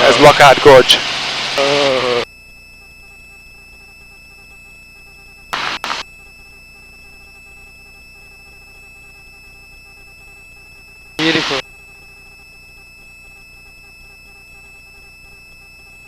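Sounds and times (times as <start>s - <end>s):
faint electrical whine: 0.0s - 16.0s
voice over intercom: 11.2s - 11.6s.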